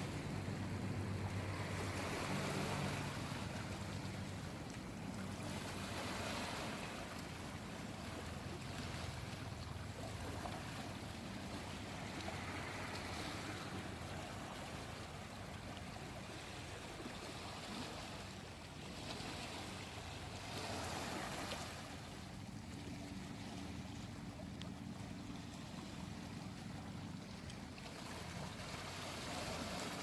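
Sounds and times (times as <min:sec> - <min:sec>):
steady low hum: 0:00.0 - 0:16.8
sea waves washing in: 0:00.0 - 0:30.0.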